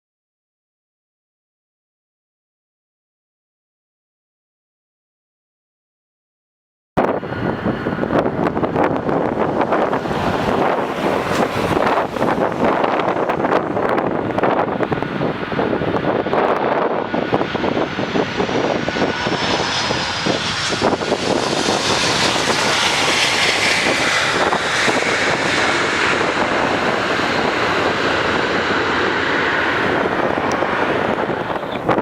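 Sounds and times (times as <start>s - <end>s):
jet engines passing close: 7.0s - 32.0s.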